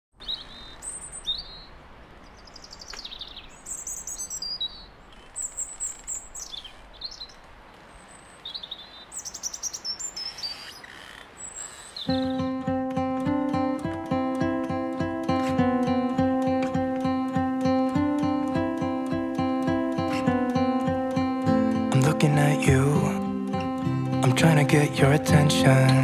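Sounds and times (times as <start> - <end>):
songbirds chirping and trilling: 0.2 - 26.0
steady background hiss: 0.2 - 26.0
acoustic guitar music: 12.1 - 26.0.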